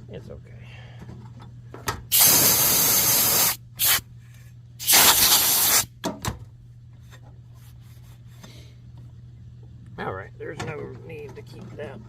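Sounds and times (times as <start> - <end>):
compressed air blasts: 2.1 - 4.0, 4.8 - 5.9.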